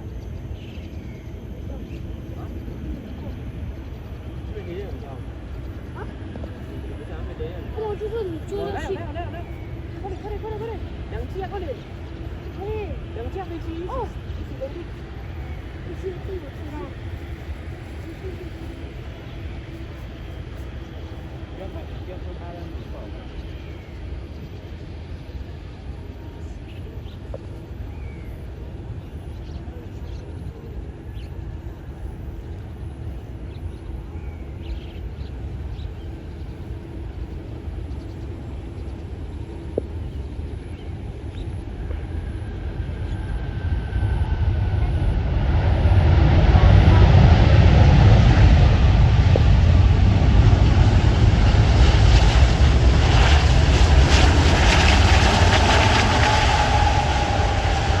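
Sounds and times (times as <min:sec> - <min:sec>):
faint steady hum: 0:00.0 - 0:45.4
faint steady whine: 0:00.0 - 0:58.0
jet engines rumbling: 0:00.0 - 0:58.0
small birds chirping: 0:33.5 - 0:42.0
wind buffeting microphone: 0:34.7 - 0:58.0.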